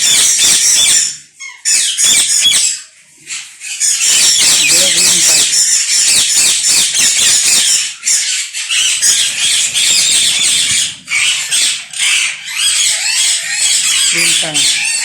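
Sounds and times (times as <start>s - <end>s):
parakeets screeching: 0.0s - 15.0s.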